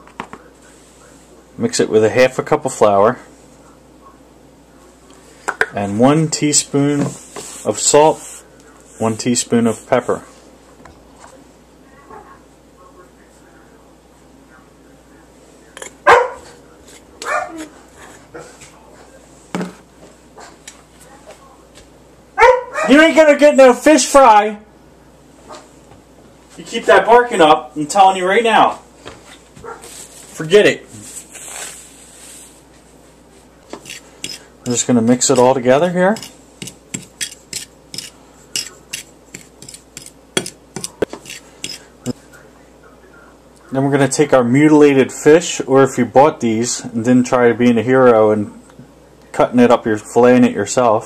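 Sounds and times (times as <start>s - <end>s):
dog barking: 16.0s - 16.6s, 17.2s - 17.6s, 22.4s - 23.0s, 29.6s - 29.9s
utensil scraping a bowl: 33.7s - 42.2s
utensil knocking on a bowl: 36.2s - 41.8s.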